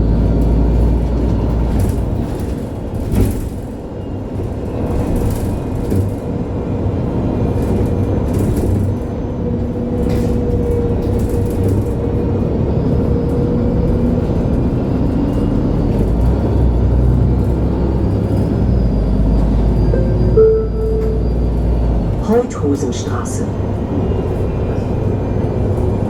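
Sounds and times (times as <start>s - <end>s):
bus engine rumble: 0.0s - 26.0s
thin even whine: 19.9s - 22.0s.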